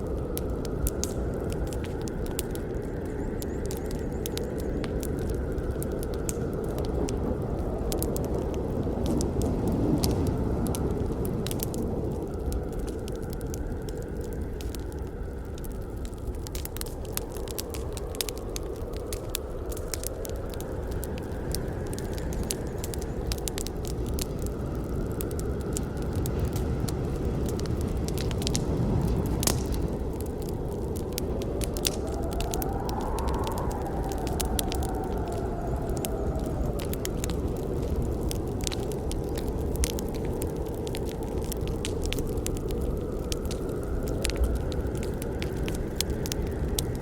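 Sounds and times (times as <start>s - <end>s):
burning wood crackling and popping: 0.0s - 47.0s
campfire flame rushing: 0.0s - 47.0s.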